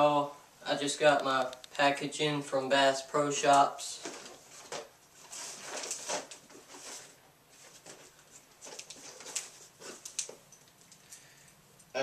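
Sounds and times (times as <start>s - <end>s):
packaging rustling and crinkling: 4.0s - 10.9s.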